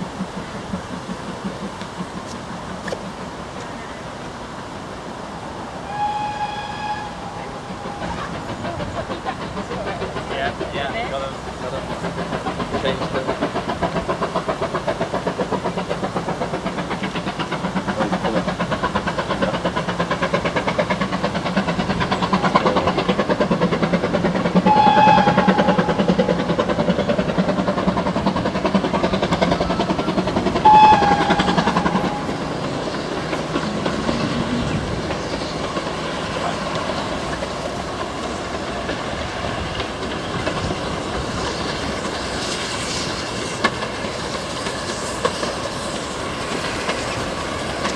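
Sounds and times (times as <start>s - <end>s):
train clattering on rails: 0.0s - 5.2s, 5.9s - 47.9s
train whistle toots: 5.8s - 8.5s, 24.6s - 26.4s, 29.4s - 32.5s.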